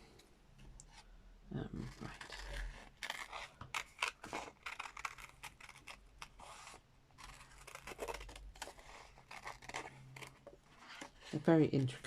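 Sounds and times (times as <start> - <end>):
scissors snipping paper: 1.8 - 11.1.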